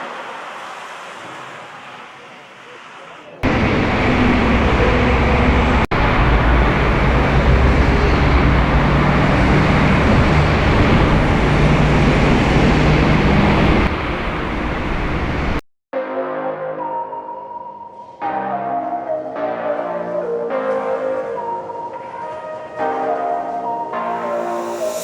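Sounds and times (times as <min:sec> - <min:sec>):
vehicle engine and road noise: 0:00.0 - 0:15.6
music: 0:16.0 - 0:25.0.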